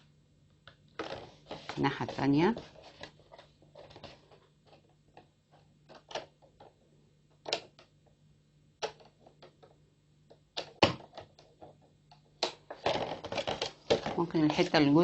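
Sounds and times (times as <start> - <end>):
faint steady hum: 0.0 - 15.0
plastic bottle flexing and clicking: 1.0 - 1.8, 2.9 - 6.7, 7.4 - 7.9, 8.8 - 9.7, 10.6 - 14.8.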